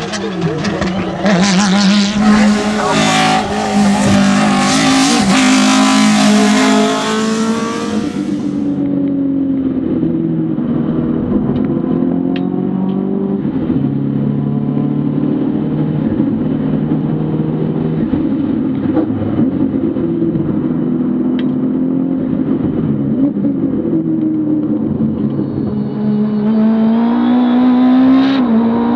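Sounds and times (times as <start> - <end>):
racing car engine revving: 0.0 - 8.9, 26.0 - 28.9.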